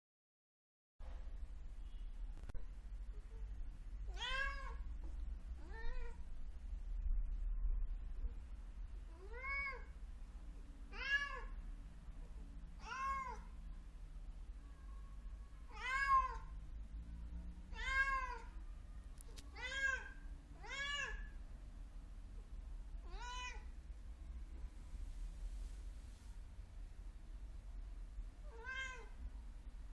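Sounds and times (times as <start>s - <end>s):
steady low hum: 1.0s - 15.8s, 16.4s - 29.9s
cat meowing: 4.1s - 4.8s, 5.6s - 6.2s, 9.1s - 9.9s, 10.9s - 11.6s, 12.8s - 13.5s, 15.7s - 16.5s, 17.7s - 18.5s, 19.5s - 21.4s, 23.0s - 23.7s, 28.4s - 29.2s.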